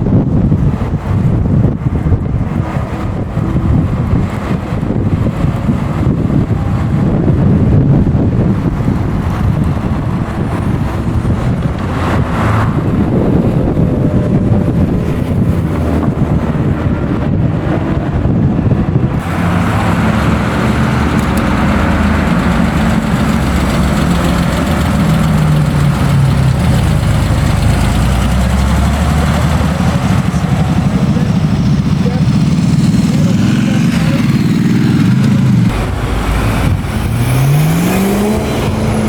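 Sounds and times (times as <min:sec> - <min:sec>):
car engine running: 0:00.1 - 0:39.0.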